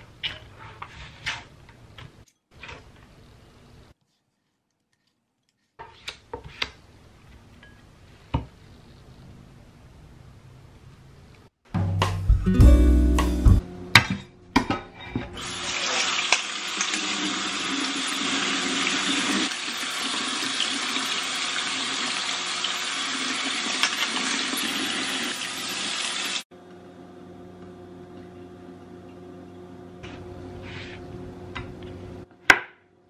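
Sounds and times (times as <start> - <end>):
tap water running into sink: 16.2 - 26.4.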